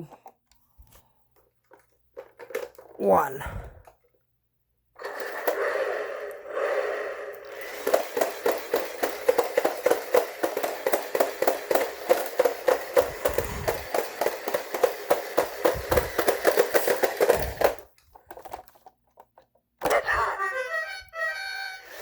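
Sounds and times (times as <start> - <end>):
toy truck plastic clacking: 7.4 - 20.0.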